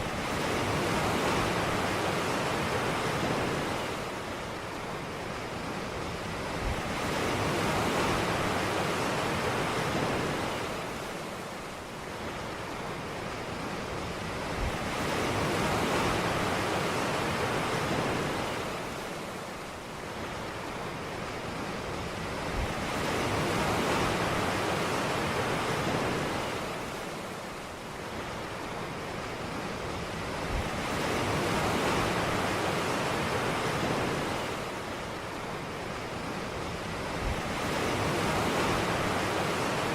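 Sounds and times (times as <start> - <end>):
ocean surf washing onto a beach: 0.0 - 39.9.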